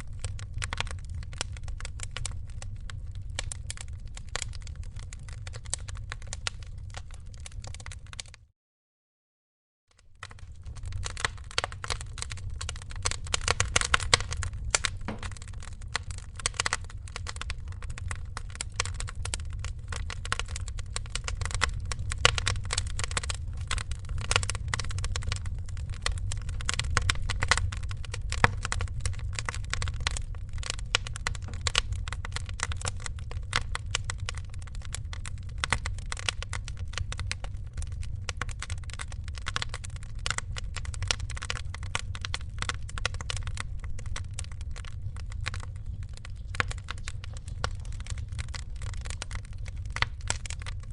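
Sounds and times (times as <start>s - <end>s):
wood fire crackling: 0.0s - 8.4s, 10.0s - 50.9s
low steady rumble: 10.2s - 50.9s.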